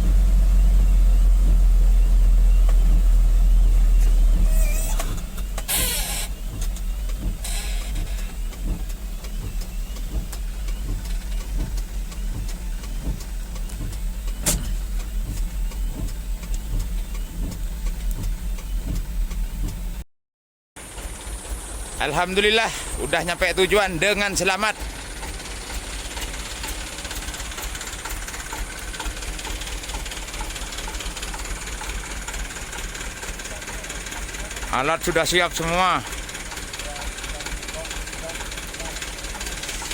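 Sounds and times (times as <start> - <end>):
diesel dump truck running: 0.0 - 20.0, 20.8 - 39.9
light ticking: 0.1 - 20.0, 20.8 - 39.9
hiss: 4.0 - 11.5, 36.0 - 39.9.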